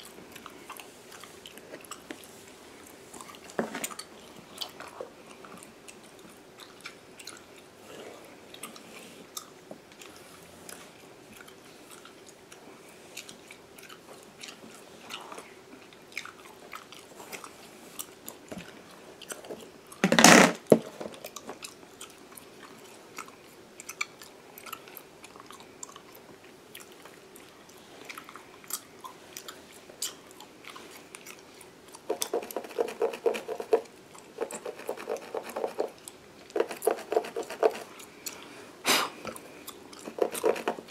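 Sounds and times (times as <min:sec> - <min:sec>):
gum chewing: 0:00.0 - 0:20.0, 0:21.2 - 0:38.5, 0:39.3 - 0:40.9
comb scratching through hair: 0:34.4 - 0:36.0, 0:36.6 - 0:37.9.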